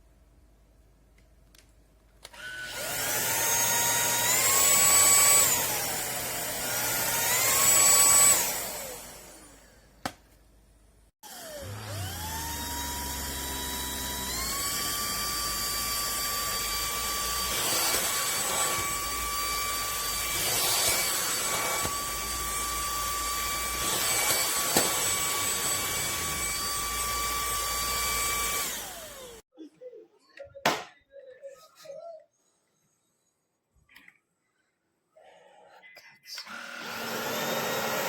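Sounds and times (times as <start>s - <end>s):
stick vacuum motor whining: 2.2s - 9.8s, 11.2s - 29.4s, 36.4s - 38.0s.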